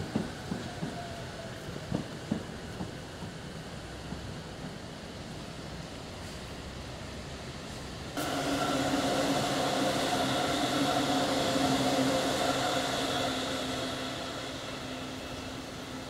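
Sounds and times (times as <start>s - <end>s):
electric train humming: 8.2s - 16.0s
train wheels rolling: 8.2s - 16.0s.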